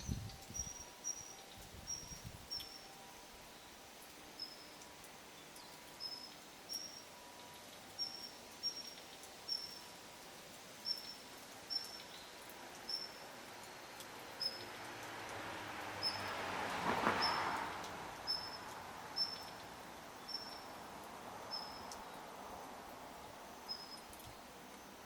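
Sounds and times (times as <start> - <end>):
songbird call notes: 0.0 - 3.8, 4.4 - 9.9, 10.8 - 13.3, 14.4 - 14.7, 16.0 - 16.4, 18.3 - 20.8, 21.4 - 22.2, 23.2 - 25.0
faint outdoor background noise: 0.0 - 25.0.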